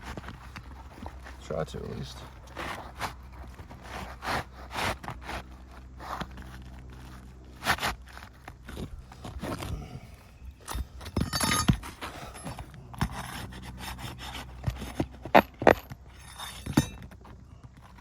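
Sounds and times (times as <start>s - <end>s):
shingle scraping on roof: 0.0s - 18.0s.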